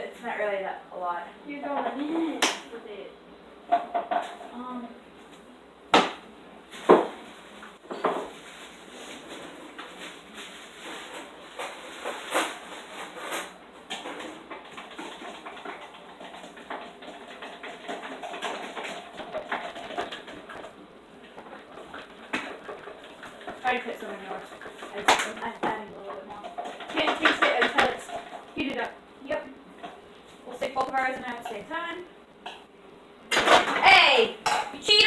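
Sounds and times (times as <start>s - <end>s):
dishes and utensils clattering: 7.9s - 8.3s, 11.0s - 28.6s.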